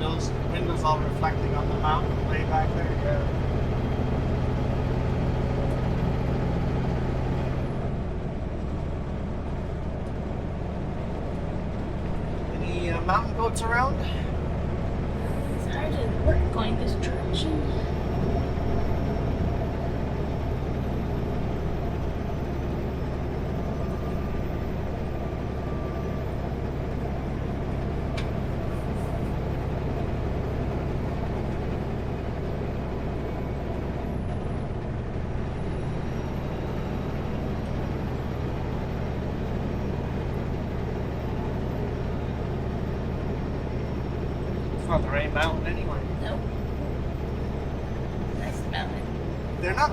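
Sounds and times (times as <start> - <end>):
road noise: 0.0 - 49.9
truck engine drone: 0.0 - 49.9.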